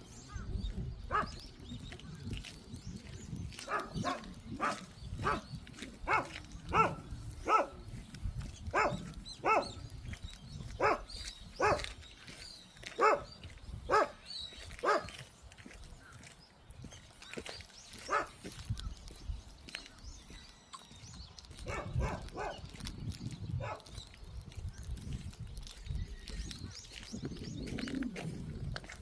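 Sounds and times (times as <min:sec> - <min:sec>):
dog barking: 0:01.1 - 0:01.4, 0:03.6 - 0:07.8, 0:08.7 - 0:09.8, 0:10.7 - 0:12.0, 0:12.9 - 0:14.2, 0:14.8 - 0:15.2, 0:18.0 - 0:18.4, 0:21.6 - 0:22.7, 0:23.6 - 0:24.0.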